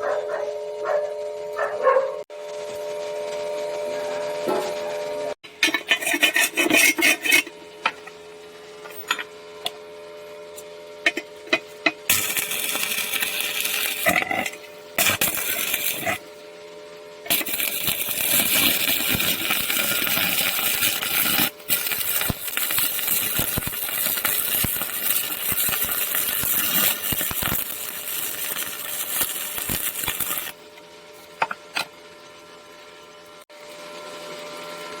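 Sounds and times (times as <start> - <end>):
welding arc crackling and hissing: 11.4 - 16.4, 17.2 - 30.7.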